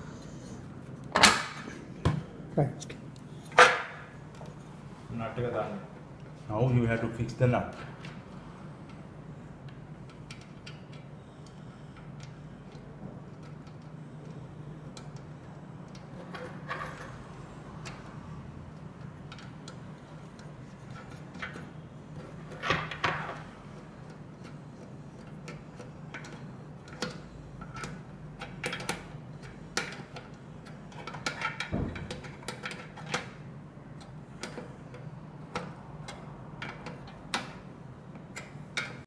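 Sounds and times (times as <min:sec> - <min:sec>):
steady low hum: 0:00.0 - 0:39.0
metal parts clicking and knocking: 0:19.0 - 0:33.3.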